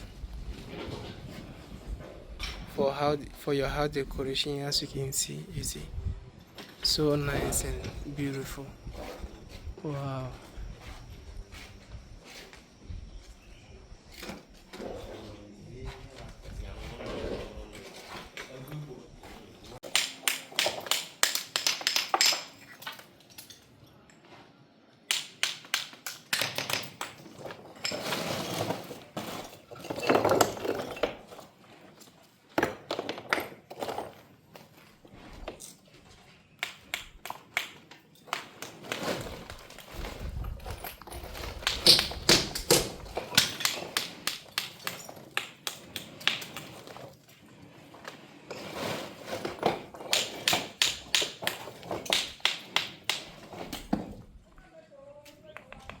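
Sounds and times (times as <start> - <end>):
rough scraping: 6.8 - 19.8, 27.7 - 29.9, 38.6 - 54.2
taps and knocks on stone: 19.8 - 22.6, 25.1 - 27.3, 49.6 - 54.2.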